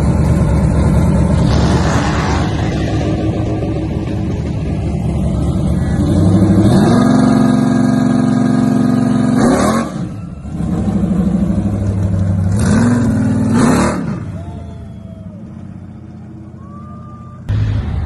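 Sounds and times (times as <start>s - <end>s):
car engine revving: 1.0s - 14.2s.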